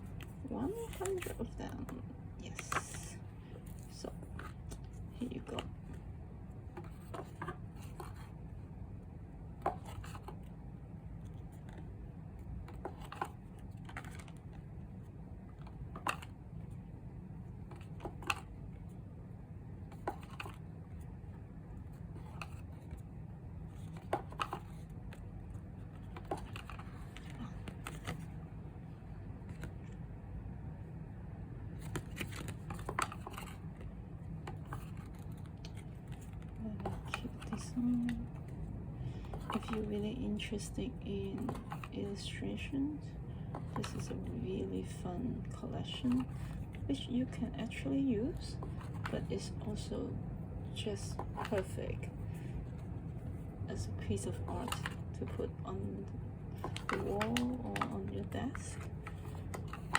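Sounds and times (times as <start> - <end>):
steady low hum: 0.0 - 59.9
paper postcards flipped through: 31.8 - 38.6, 58.8 - 59.9.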